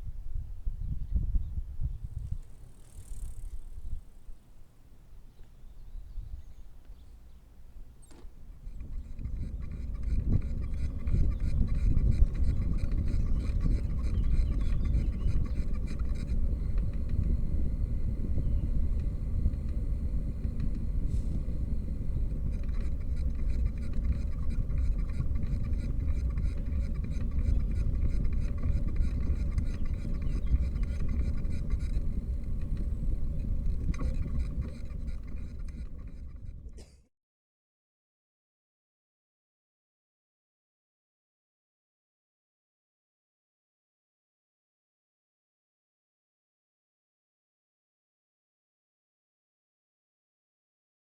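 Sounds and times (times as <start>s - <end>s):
wind rumble on microphone: 0.0s - 36.8s
bicycle road noise: 2.0s - 5.3s, 7.4s - 36.8s
faint rapid ticking: 8.5s - 36.6s.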